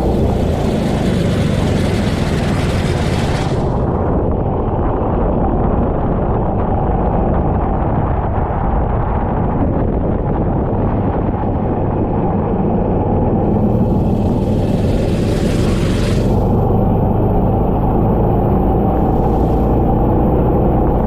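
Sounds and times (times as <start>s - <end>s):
go-kart engine running: 0.0s - 5.0s, 11.4s - 21.0s.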